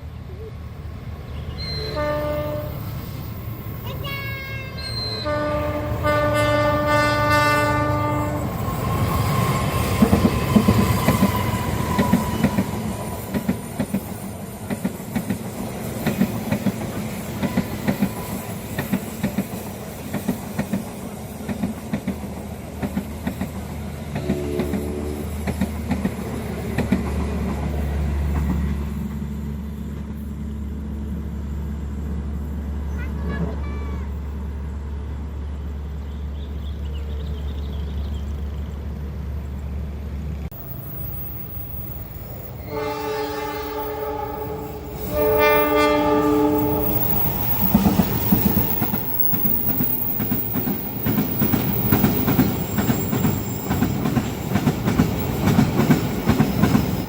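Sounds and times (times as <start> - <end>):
train rumble: 0.0 - 57.0
train horn blasts: 1.7 - 3.0, 4.1 - 8.6, 24.2 - 25.3, 42.6 - 47.3
train wheels clicking over rail joints: 8.6 - 31.2, 44.8 - 57.0.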